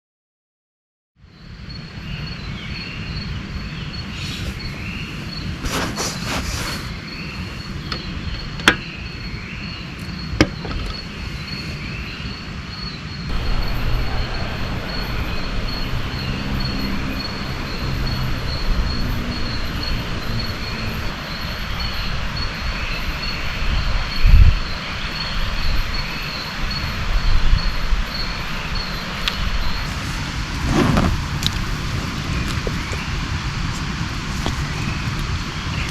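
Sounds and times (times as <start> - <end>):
low rumbling noise: 13.2 - 24.7, 26.7 - 35.9
insect trilling: 13.3 - 33.4.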